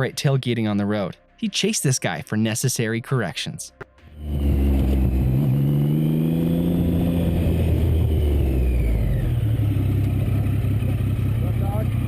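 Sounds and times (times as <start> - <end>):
low road rumble: 3.8 - 12.0
vehicle engine accelerating: 4.1 - 12.0.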